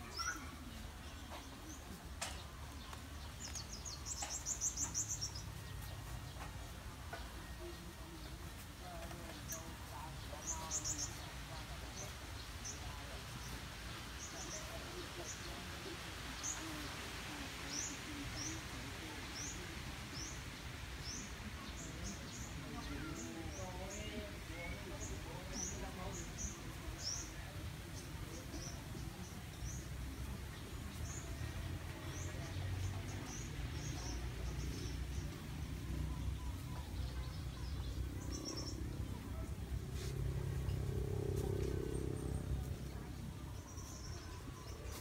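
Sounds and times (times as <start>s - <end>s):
steady low rumble: 37.8s - 44.9s.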